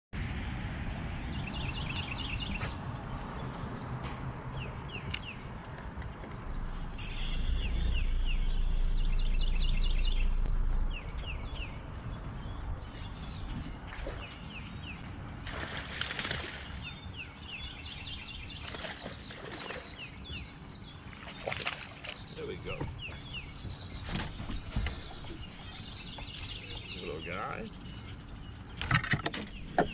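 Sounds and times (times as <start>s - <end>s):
small birds chirping: 0.6s - 4.0s, 4.6s - 29.9s
loud low hum: 6.4s - 12.8s.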